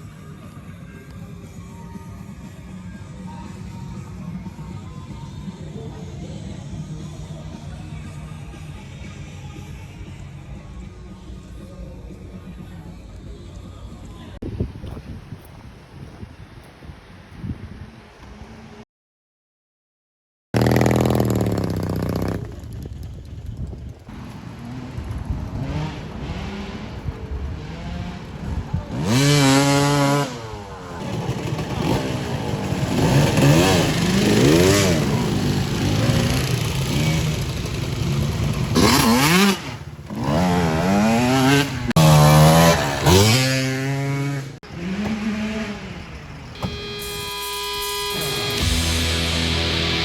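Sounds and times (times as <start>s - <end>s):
motorbike engines revving: 20.6s - 50.0s.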